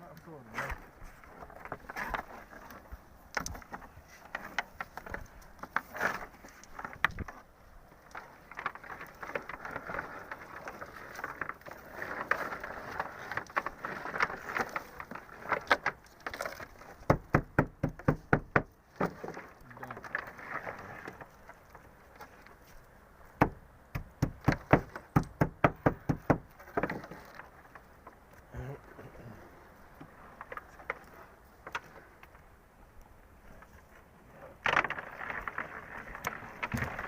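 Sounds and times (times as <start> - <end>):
rustling and scraping: 0.0 - 37.0
sharp rapid knocks: 23.4 - 26.4.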